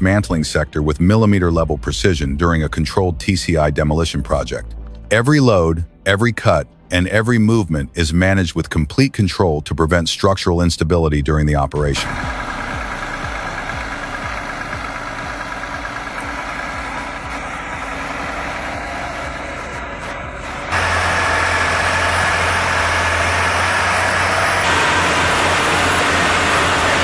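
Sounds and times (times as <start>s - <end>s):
engine hum with low tone: 11.4s - 27.0s
heavy diesel machinery running: 11.8s - 27.0s.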